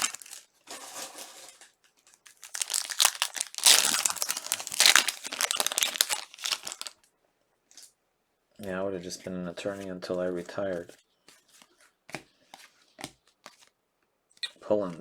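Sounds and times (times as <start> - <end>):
plastic wrapper crinkling: 0.0 - 7.1.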